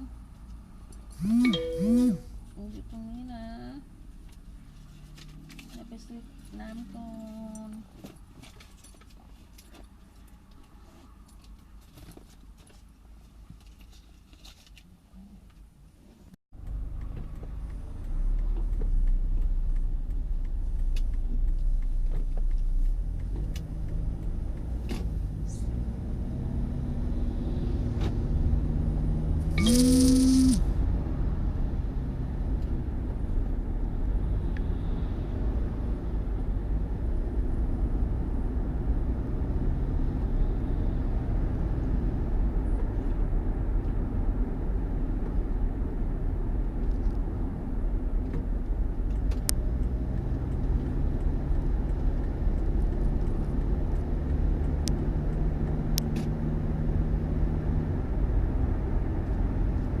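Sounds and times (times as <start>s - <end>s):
vehicle engine rumble: 0.0s - 60.0s.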